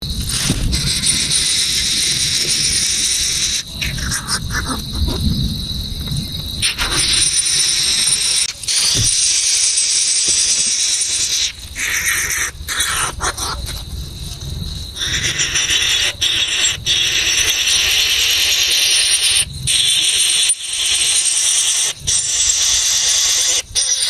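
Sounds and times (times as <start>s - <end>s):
low rumble: 0.0s - 6.6s
insects chirring: 0.0s - 24.0s.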